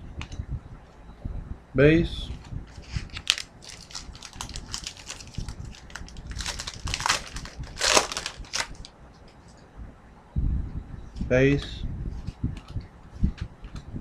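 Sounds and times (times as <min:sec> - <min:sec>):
card pack wrapper crinkling: 0:02.7 - 0:08.9.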